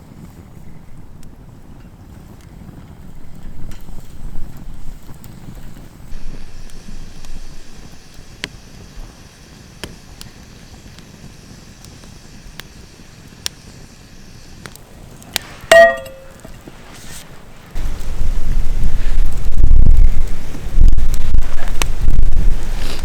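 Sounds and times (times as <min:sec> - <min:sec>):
ringing metal clank: 0:15.7 - 0:16.5.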